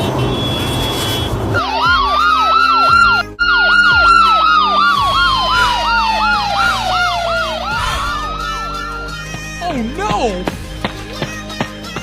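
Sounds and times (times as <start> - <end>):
siren wail gliding down: 1.6 - 9.3
siren yelp: 1.6 - 9.3.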